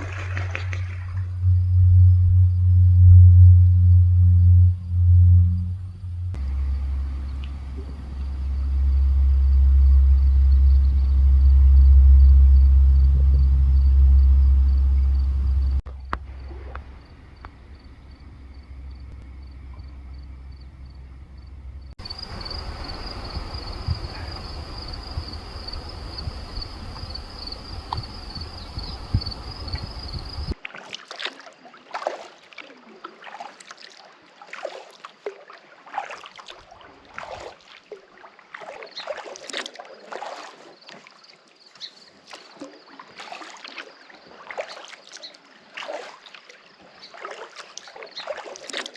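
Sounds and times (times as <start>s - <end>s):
paddle blades splashing: 0.0s - 1.6s, 6.3s - 10.1s, 15.0s - 32.4s
wind rumble on microphone: 0.4s - 30.6s
high pulsing trill: 1.4s - 15.8s
water hiss: 6.4s - 10.5s, 22.0s - 30.6s.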